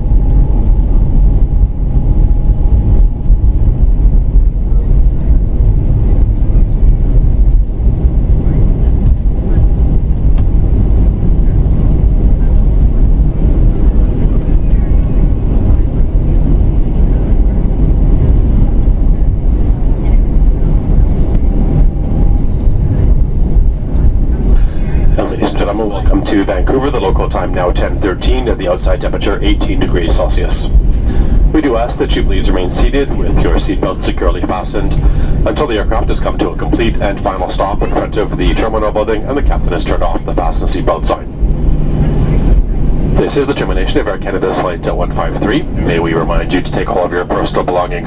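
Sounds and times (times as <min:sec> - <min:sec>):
airplane cabin rumble: 0:00.0 - 0:48.0.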